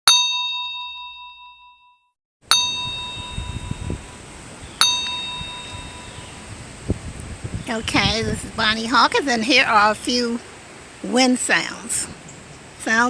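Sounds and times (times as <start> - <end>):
bell-like chime ringing: 0.1 - 6.4
wind gusts on microphone: 2.6 - 13.0.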